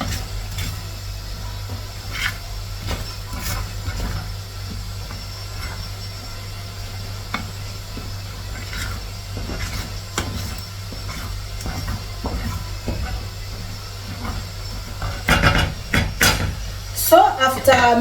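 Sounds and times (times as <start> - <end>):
spoon scraping cooking pot: 7.0 - 16.8.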